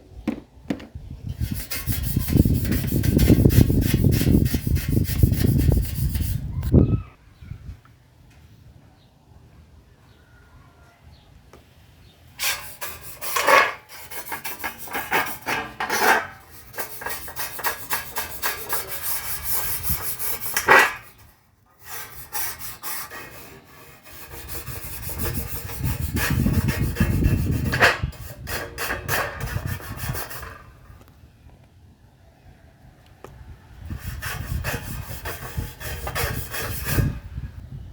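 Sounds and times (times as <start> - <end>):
abrasive rubbing on hard surface: 1.3 - 6.5, 12.4 - 30.7, 34.0 - 37.2.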